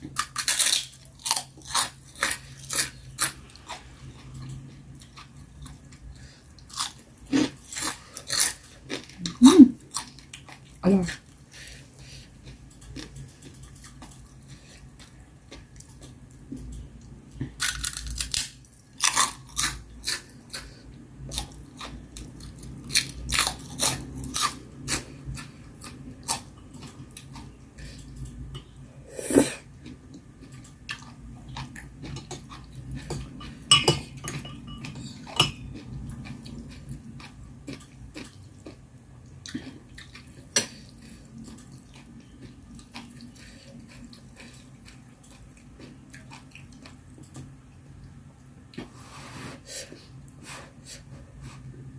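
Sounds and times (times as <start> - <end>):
chewing and crunching: 0.0 - 11.4, 12.0 - 28.3, 29.6 - 33.6, 34.3 - 47.5
utensils clinking on dish: 33.1 - 35.7.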